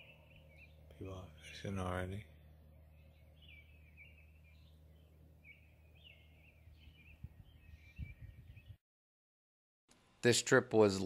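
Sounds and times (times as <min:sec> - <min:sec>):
steady low hum: 0:00.0 - 0:08.6
songbird warbling: 0:00.0 - 0:08.8.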